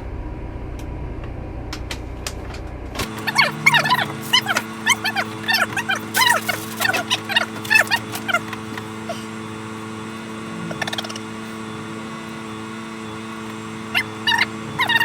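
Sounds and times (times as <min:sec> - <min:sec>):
bird calls wavering notes: 0:03.1 - 0:15.0.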